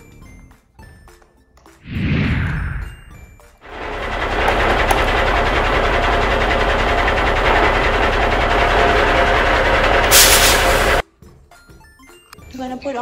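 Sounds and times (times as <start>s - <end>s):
small motor rattling: 3.6s - 11.0s.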